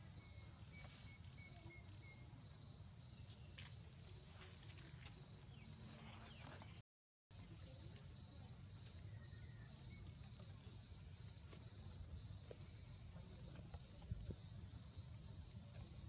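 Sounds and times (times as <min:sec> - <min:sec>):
insect chorus drone: 0:00.0 - 0:06.8, 0:07.4 - 0:16.0.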